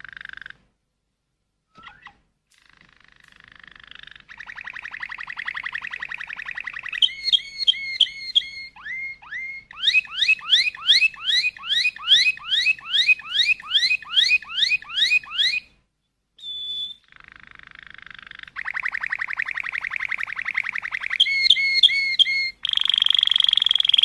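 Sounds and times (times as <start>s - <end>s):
bird whistling song: 1.7s - 3.0s, 3.8s - 15.7s, 16.4s - 24.0s
steady high whistle: 4.5s - 15.6s, 18.7s - 24.0s.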